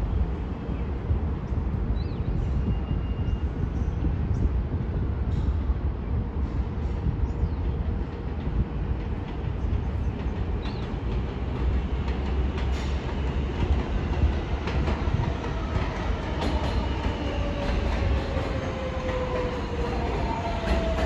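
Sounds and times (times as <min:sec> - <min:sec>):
subway train rumbling: 0:00.0 - 0:21.0.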